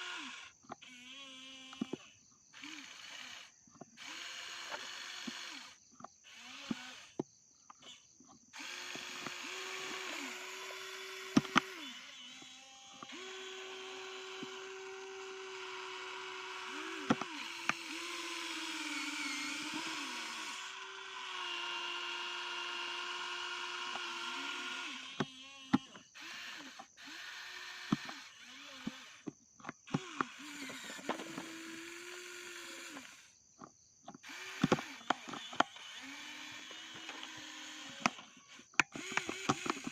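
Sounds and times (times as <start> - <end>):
toy truck motor whining: 0.0 - 33.4, 34.1 - 39.9
sharp clicks: 34.3 - 39.9.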